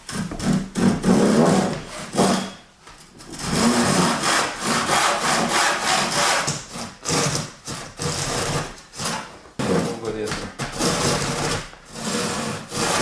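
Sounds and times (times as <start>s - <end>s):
saw cutting wooden board: 3.4s - 13.0s.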